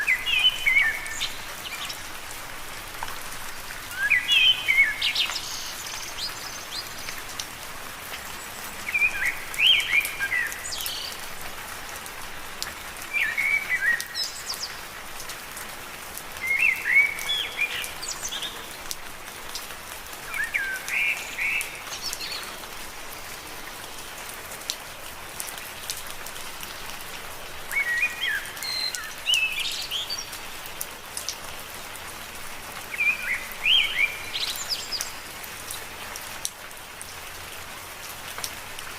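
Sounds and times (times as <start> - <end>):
rain falling on leaves: 0.0 - 38.9
bird chirping: 32.9 - 35.3.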